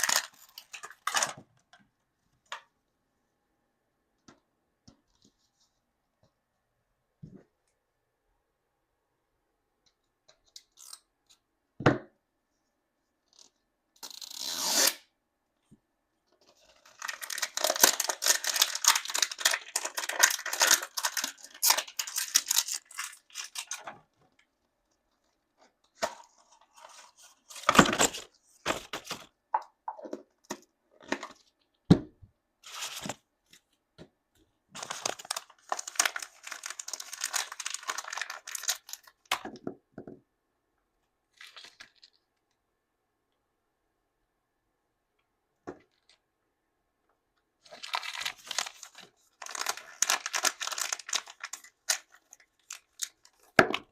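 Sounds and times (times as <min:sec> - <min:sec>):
plastic packaging crinkling: 0:00.0 - 0:01.3, 0:16.6 - 0:24.4, 0:34.8 - 0:39.3, 0:47.6 - 0:53.6.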